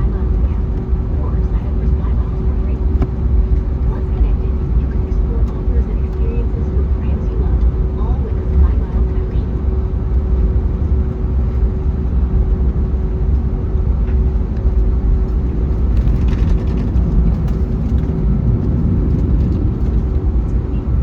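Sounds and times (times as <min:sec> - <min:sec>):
jet engine cabin rumble: 0:00.0 - 0:21.0.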